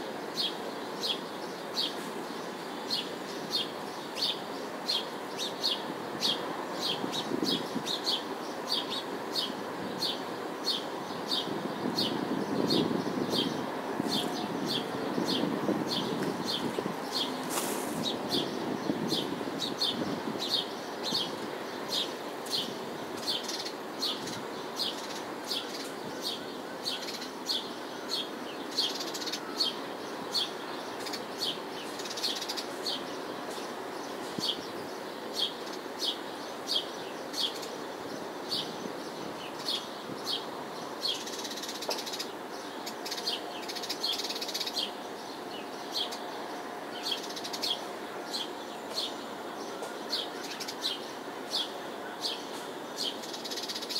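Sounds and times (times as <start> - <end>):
city traffic hum: 0.0 - 53.9
bird chirping: 0.3 - 53.9.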